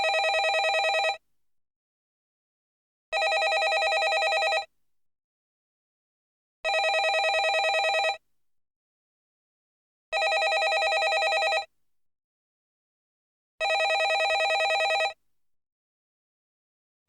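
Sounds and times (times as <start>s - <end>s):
landline telephone ringing: 0.0s - 1.2s, 3.2s - 4.7s, 6.7s - 8.2s, 10.2s - 11.7s, 13.6s - 15.2s.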